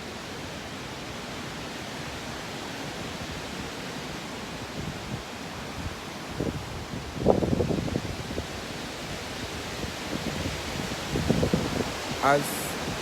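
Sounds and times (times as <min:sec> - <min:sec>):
steady background hiss: 0:11.8 - 0:13.0.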